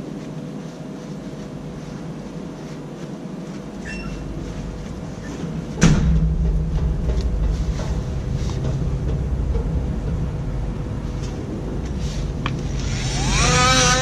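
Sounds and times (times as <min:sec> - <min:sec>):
low mechanical rumble and hum: 0:00.0 - 0:14.0
music with rising slide: 0:07.6 - 0:14.0.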